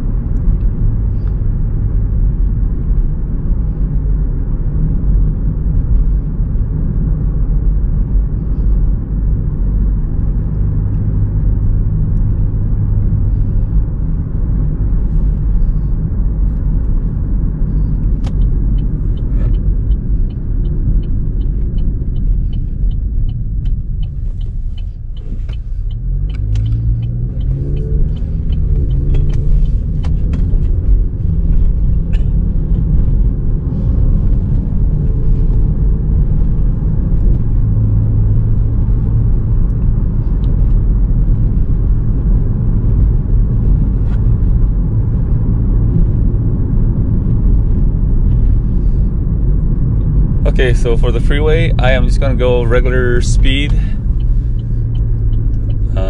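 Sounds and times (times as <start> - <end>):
car engine and road rumble: 0.0 - 56.0
regular ticks: 18.0 - 32.0, 51.3 - 56.0.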